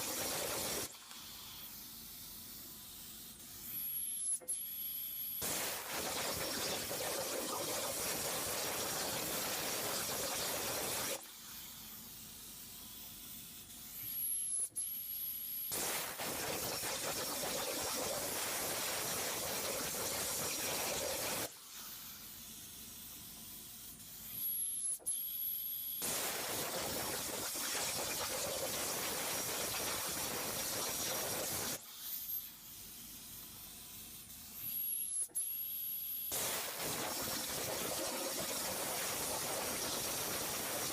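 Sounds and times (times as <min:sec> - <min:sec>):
plasma torch hissing: 0:00.0 - 0:01.8, 0:05.4 - 0:11.8, 0:15.7 - 0:22.3, 0:26.0 - 0:31.9, 0:36.3 - 0:40.9
faint hiss: 0:36.3 - 0:40.9.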